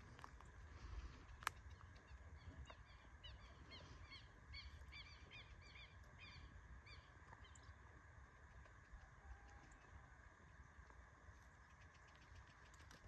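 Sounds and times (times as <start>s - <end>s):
bird chirping: 1.6s - 7.8s.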